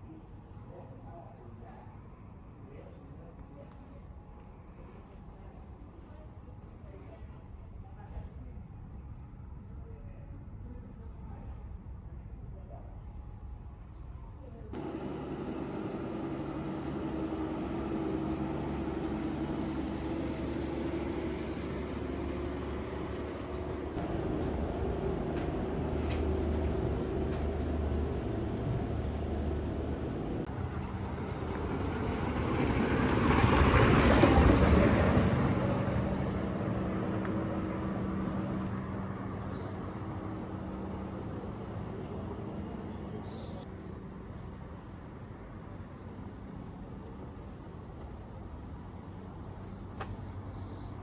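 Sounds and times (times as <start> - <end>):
vehicle passing close: 14.8 - 41.8
street traffic engines: 14.8 - 51.0.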